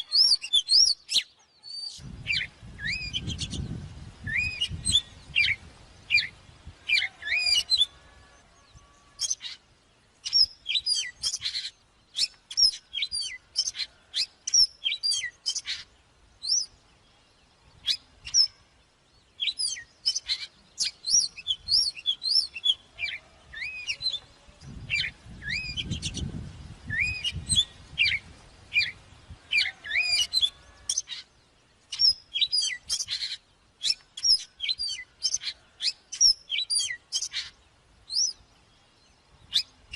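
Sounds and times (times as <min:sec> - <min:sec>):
bird singing whistles and chirps: 0:00.0 - 0:08.0, 0:10.2 - 0:16.8, 0:17.4 - 0:18.6, 0:19.2 - 0:31.3, 0:31.9 - 0:38.5, 0:39.4 - 0:39.8.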